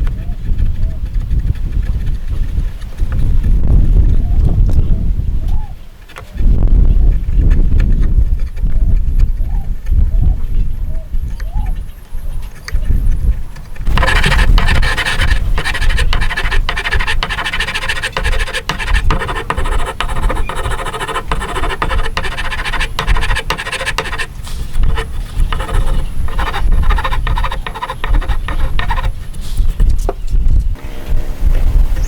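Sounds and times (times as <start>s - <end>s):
hand tool scraping wood: 13.8s - 29.2s.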